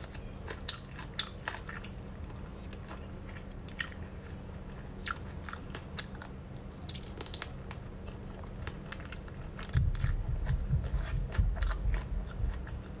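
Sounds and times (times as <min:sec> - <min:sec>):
wet chewing and biting: 0:05.0 - 0:13.0.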